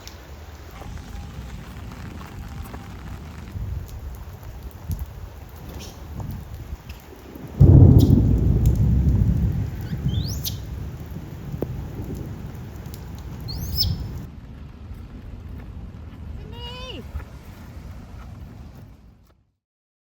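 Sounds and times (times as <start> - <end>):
steady rain: 0.0 - 19.3
thunderclap rolling into rumble: 0.6 - 16.4
rising bird chirps: 5.7 - 6.0, 7.6 - 8.3, 9.8 - 10.8, 13.4 - 14.3.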